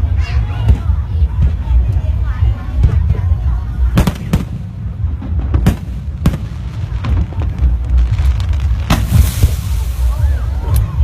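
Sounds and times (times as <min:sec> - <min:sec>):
continuous low rumble: 0:00.0 - 0:11.0
fireworks bangs: 0:02.7 - 0:11.0.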